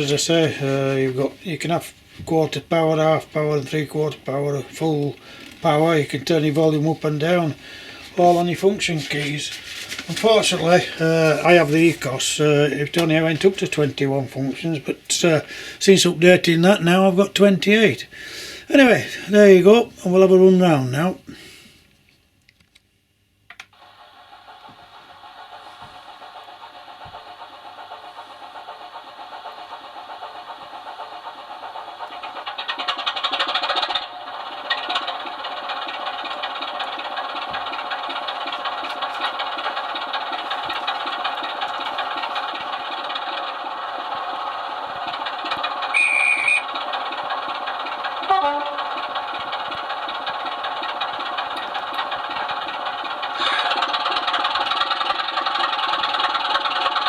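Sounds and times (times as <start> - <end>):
model diesel engine sound through speaker: 0.0 - 21.7, 23.5 - 57.0
clicks: 23.5 - 23.8
brief high tone: 46.0 - 46.6.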